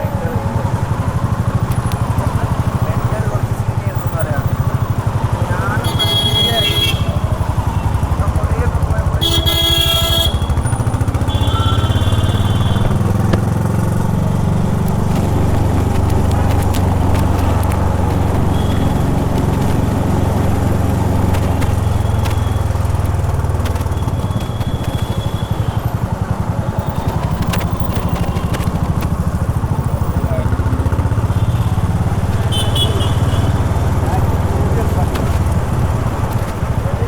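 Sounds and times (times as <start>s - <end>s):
motorcycle engine running: 0.0s - 37.0s
horn sounding: 5.6s - 8.2s, 9.0s - 26.0s, 29.8s - 34.5s.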